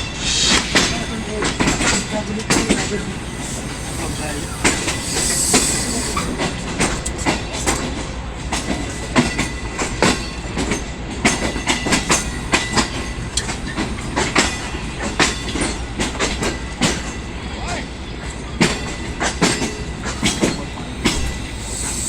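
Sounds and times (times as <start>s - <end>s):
steady train rumble: 0.0s - 22.0s
train wheels clattering over rail joints: 0.5s - 17.3s
brief hiss: 2.7s - 6.7s, 21.5s - 22.0s.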